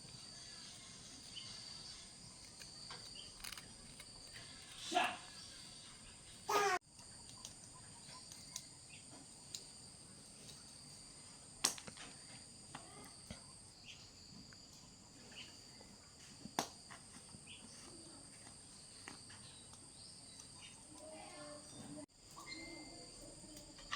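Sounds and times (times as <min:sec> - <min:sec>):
insects chirring: 0:00.0 - 0:23.9.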